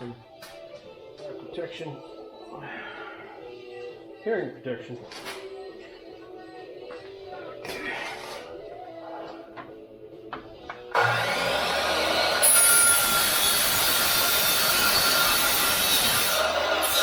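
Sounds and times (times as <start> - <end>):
miter saw cutting steel: 11.0 - 17.0.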